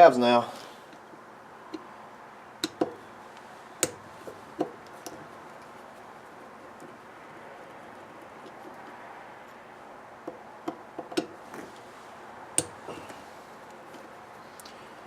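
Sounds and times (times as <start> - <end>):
light sharp clicks and knocks: 2.6 - 3.0.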